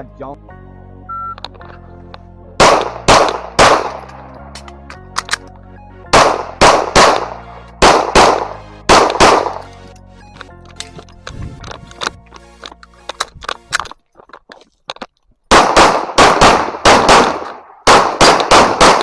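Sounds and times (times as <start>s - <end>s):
background music: 0.0s - 14.1s
shot timer beep: 1.1s - 1.4s
pistol shots: 2.6s - 4.2s, 6.1s - 9.7s, 15.5s - 19.0s.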